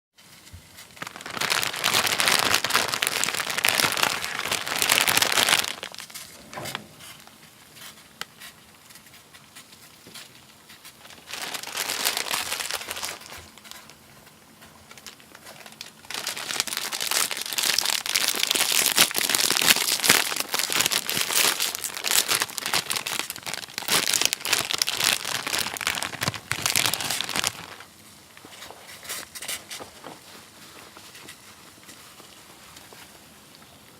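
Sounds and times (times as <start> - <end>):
packaging wrapper crinkling: 0.3 - 6.4, 7.0 - 33.1.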